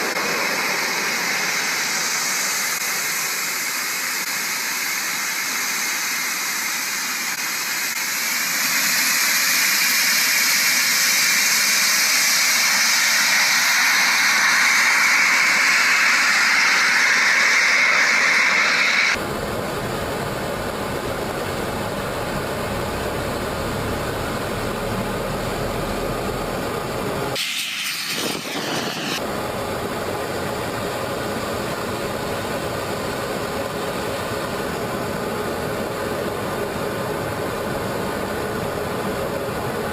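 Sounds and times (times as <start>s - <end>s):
small jet engines whining: 0.0s - 39.9s
low rough rushing noise: 12.1s - 19.2s, 27.4s - 29.3s.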